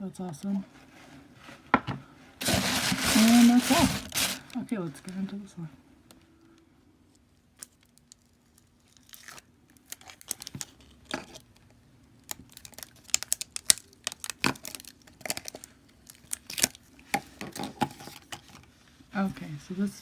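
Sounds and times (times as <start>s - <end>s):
slime crinkling and crackling: 2.4s - 4.6s, 7.6s - 17.0s.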